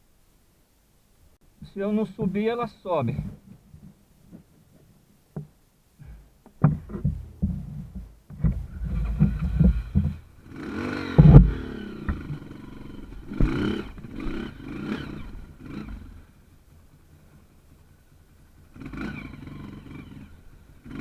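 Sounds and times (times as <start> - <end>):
sharp knocks and clatter: 3.1 - 10.2, 11.1 - 12.4
motorcycle engine revving: 6.0 - 21.0.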